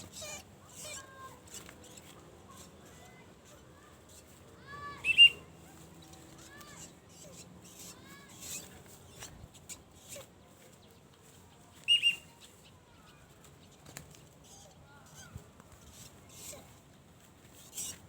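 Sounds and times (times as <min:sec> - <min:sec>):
faint bird chirps: 0:00.1 - 0:16.7
bird giving high calls: 0:05.0 - 0:05.4, 0:11.8 - 0:12.5.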